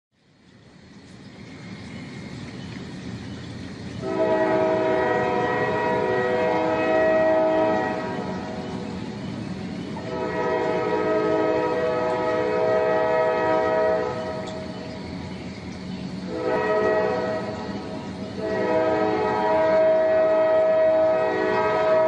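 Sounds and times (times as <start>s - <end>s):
rumble of passing train: 0.2s - 22.0s
locomotive air horn blasts: 4.0s - 8.9s, 10.0s - 14.6s, 16.3s - 22.0s.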